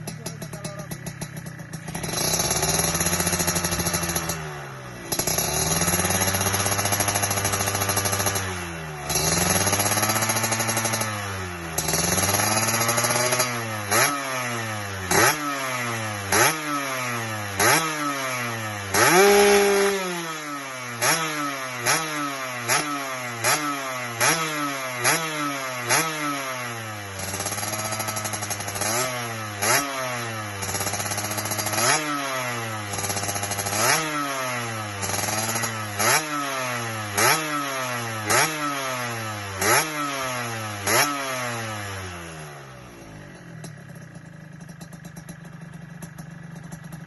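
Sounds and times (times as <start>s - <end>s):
two-stroke motorcycle engine revving: 0.0s - 47.0s.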